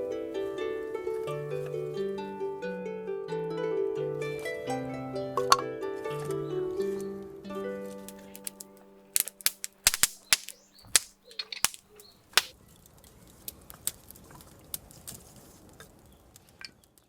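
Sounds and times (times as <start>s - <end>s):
wood fire crackling: 8.1s - 12.5s.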